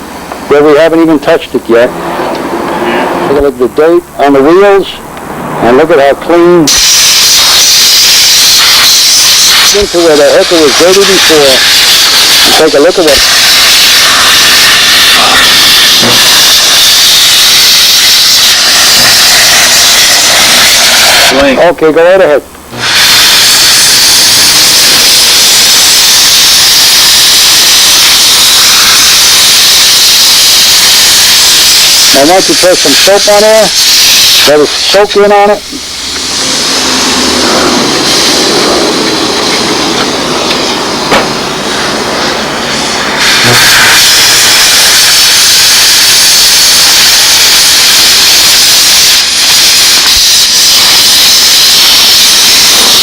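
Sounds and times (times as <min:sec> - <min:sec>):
steam cleaner hissing: 0:06.7 - 0:21.4, 0:22.7 - 0:53.0
sharp knock: 0:41.1 - 0:41.3.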